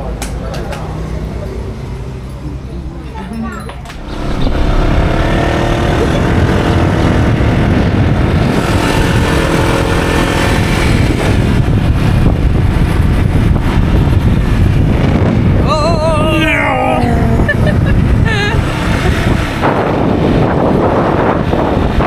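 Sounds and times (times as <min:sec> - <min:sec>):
wind and road noise: 0:00.0 - 0:22.0
vehicle engine running: 0:03.9 - 0:15.8, 0:16.9 - 0:22.0.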